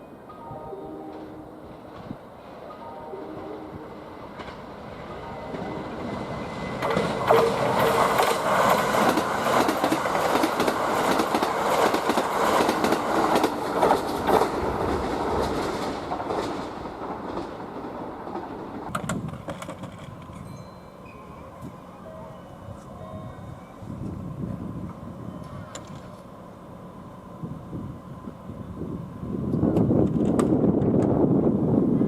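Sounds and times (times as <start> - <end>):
electric train passing: 0.0 - 32.0
wheel clatter over rail joints: 6.4 - 20.5.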